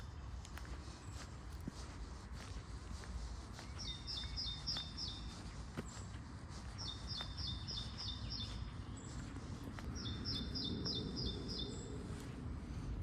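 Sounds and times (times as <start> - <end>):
songbird singing: 3.5 - 12.4
low outdoor rumble: 8.6 - 13.0.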